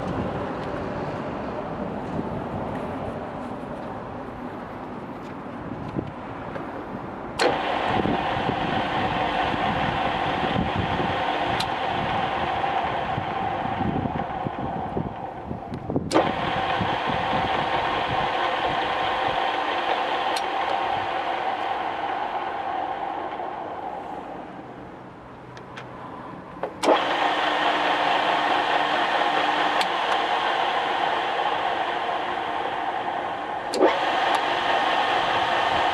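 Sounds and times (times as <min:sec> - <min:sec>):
lathe switch click: 0:07.4 - 0:23.5, 0:26.6 - 0:35.9
lathe whirring: 0:07.4 - 0:25.1, 0:26.6 - 0:35.9.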